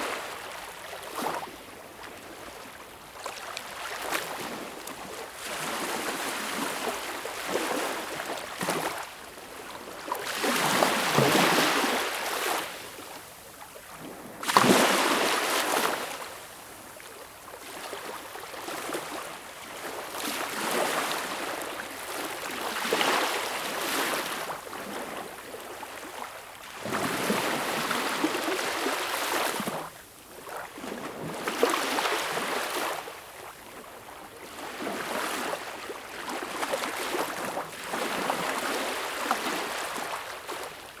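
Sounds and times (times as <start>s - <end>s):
sea waves breaking on shore: 3.8s - 13.2s, 14.0s - 16.4s.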